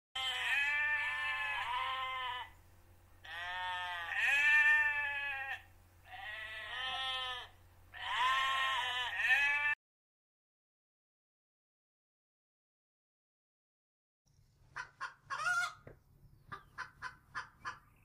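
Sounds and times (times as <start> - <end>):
sheep bleating: 0.2 - 2.6, 3.2 - 9.8.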